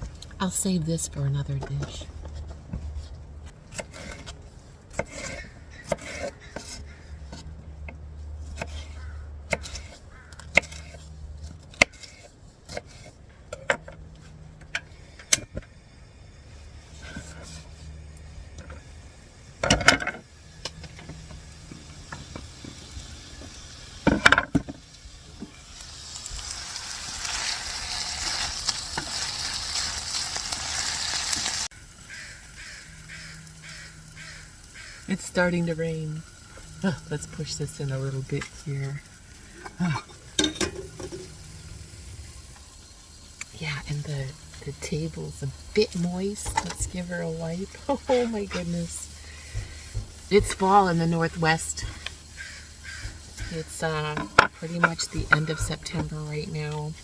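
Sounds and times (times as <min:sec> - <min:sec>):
camp stove hissing: 0:14.7 - 0:57.0
sausage sizzling in a pan: 0:24.8 - 0:57.0.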